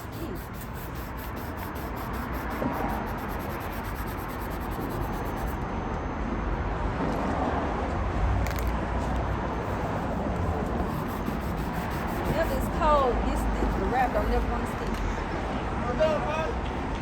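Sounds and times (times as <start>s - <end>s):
exhaust drone: 0.0s - 5.6s.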